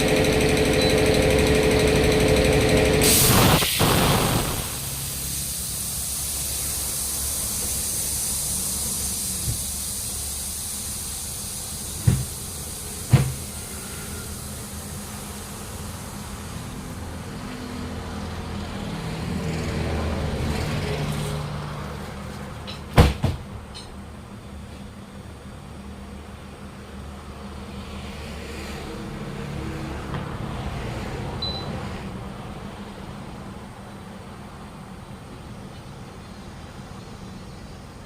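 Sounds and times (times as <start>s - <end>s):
low mechanical hum: 0.0s - 19.0s
hiss: 3.0s - 17.3s
sharp knocks: 12.0s - 12.4s, 13.1s - 13.4s.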